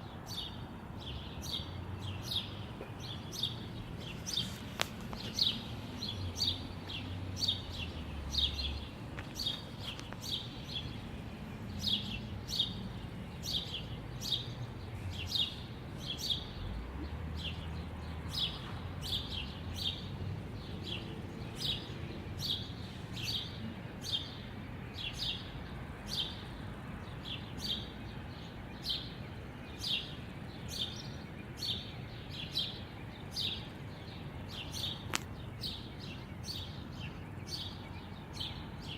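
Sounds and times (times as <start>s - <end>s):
songbird chirping: 0.0s - 38.9s.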